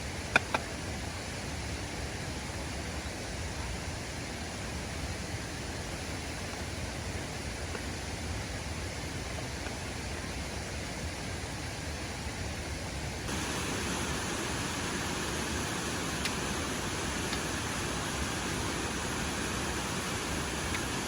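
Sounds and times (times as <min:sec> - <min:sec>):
waterfall rushing: 0:13.3 - 0:21.0.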